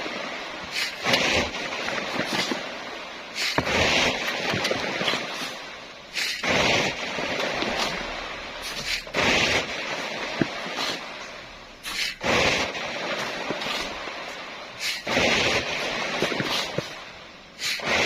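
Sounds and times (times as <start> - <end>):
shovels scraping sand: 0.0 - 18.0.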